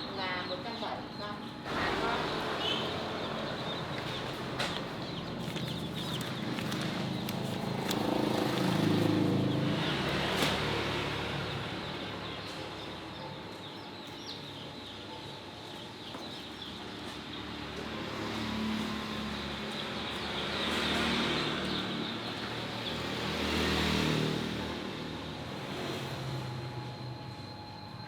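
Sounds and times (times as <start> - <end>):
chicks peeping: 0.0 - 23.2
road vehicles passing: 0.0 - 28.0.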